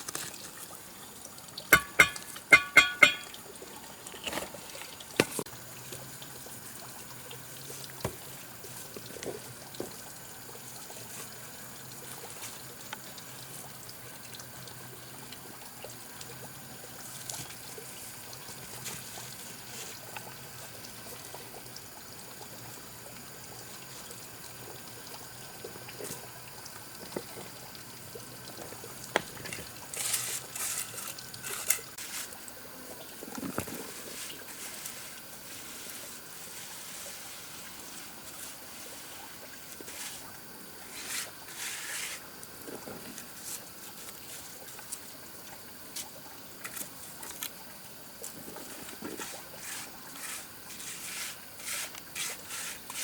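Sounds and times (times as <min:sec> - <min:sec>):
water trickling: 0:00.0 - 0:53.0
clattering: 0:01.8 - 0:03.3.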